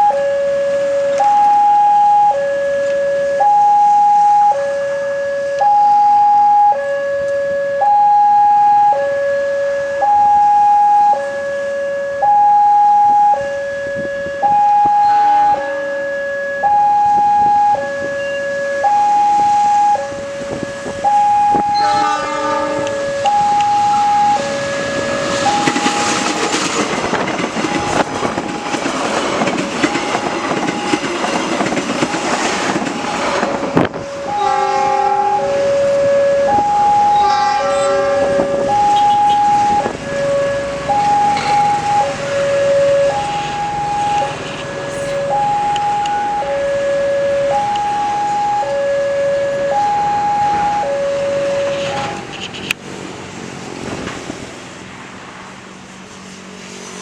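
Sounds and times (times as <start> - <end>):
level-crossing two-tone warning signal: 0.0 - 32.9, 33.7 - 52.7
train horn: 13.0 - 28.8, 33.2 - 49.8, 50.4 - 52.5
train wheel and rail noise: 13.1 - 57.0.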